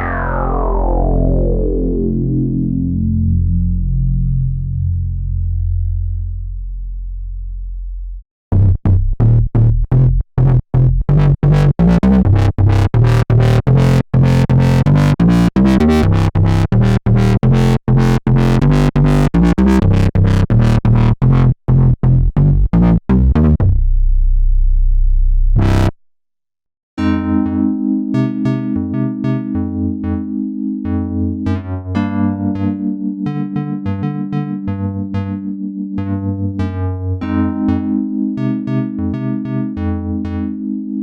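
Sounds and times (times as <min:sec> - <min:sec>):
synth bass staccato notes: 0:00.0 - 0:03.6, 0:08.5 - 0:24.0, 0:25.5 - 0:26.0
electric piano synth chords: 0:00.0 - 0:05.0, 0:27.0 - 0:41.0.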